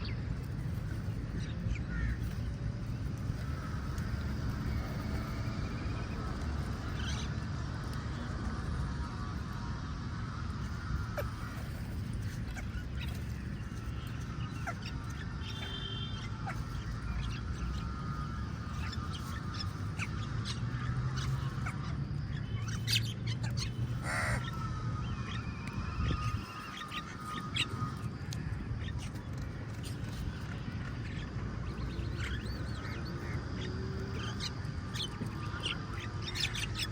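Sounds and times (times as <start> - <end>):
steady low rumble: 0.0 - 36.9
crows cawing: 1.8 - 2.2, 24.0 - 24.8.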